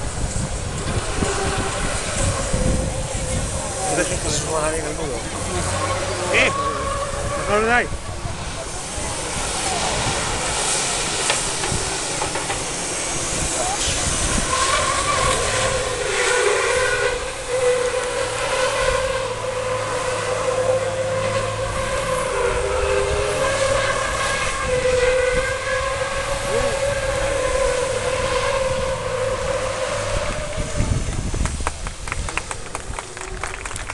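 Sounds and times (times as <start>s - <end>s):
lower truck horn: 0.8s - 8.0s, 13.0s - 31.5s
truck air horn blast: 5.6s - 8.0s, 12.7s - 31.4s.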